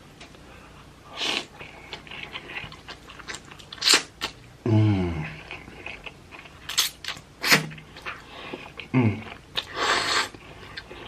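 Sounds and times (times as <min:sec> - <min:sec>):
short hummed voice: 0:04.6 - 0:05.4
wet chewing and mouth clicks: 0:05.5 - 0:11.0.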